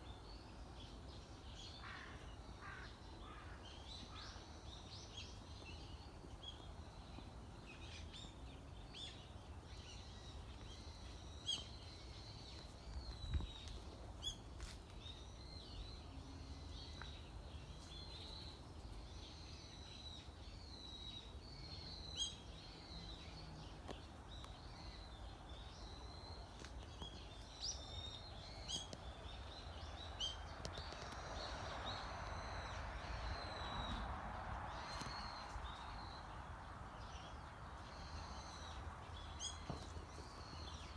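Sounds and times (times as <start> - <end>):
songbirds chirping and singing: 15.4 - 40.9.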